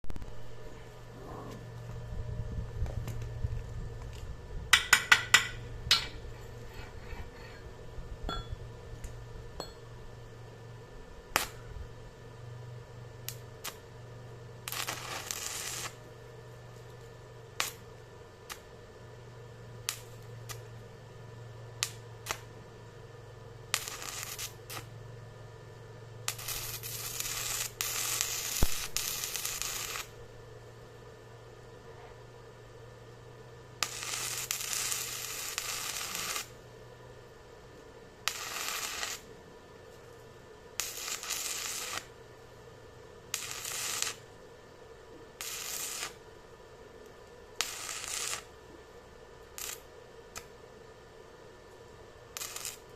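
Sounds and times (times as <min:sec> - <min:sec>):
metal-on-metal strikes: 0:08.3 - 0:08.6.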